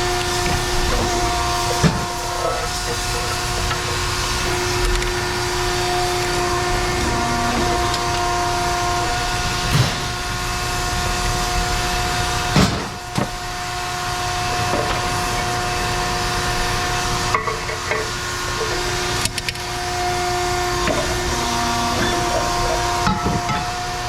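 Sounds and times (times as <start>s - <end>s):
heavy machinery whining: 0.0s - 24.0s.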